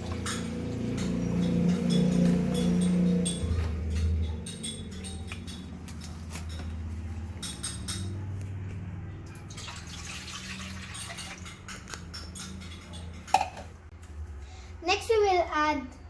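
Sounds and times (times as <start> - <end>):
water pouring into pan: 9.5 - 11.5.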